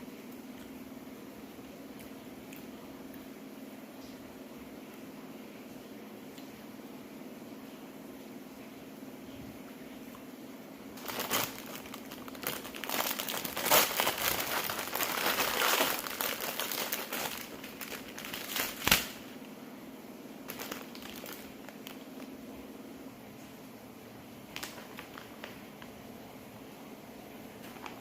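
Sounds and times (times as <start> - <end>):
faint steady hum: 0.0 - 28.0
plastic packaging crinkling: 11.0 - 19.4, 20.4 - 22.4, 24.5 - 26.0, 27.6 - 28.0.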